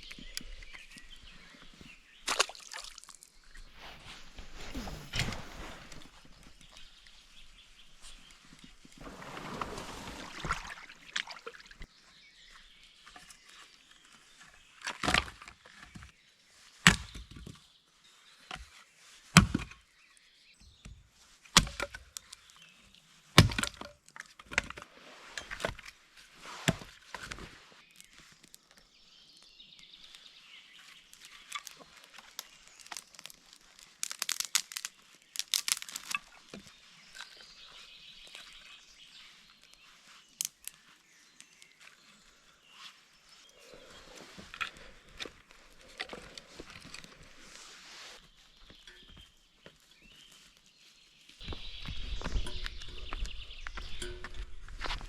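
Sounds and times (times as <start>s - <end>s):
soft rustle: 0.0s - 11.9s, 24.8s - 55.0s
sharp wooden cracks and knocks: 21.6s - 22.4s, 23.4s - 24.8s, 31.2s - 36.7s.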